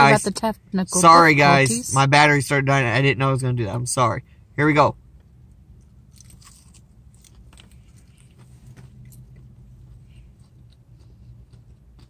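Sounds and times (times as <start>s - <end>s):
low steady hum: 0.0s - 12.0s
people chewing and smacking: 6.1s - 12.0s.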